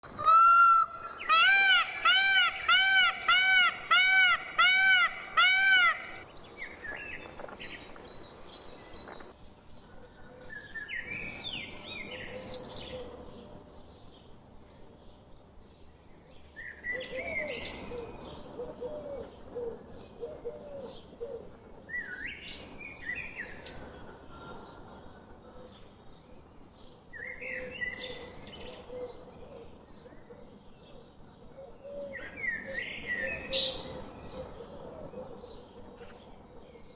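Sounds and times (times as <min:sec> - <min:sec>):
birds chirping: 0:00.0 - 0:06.2
lower repeated bird notes: 0:00.0 - 0:06.2.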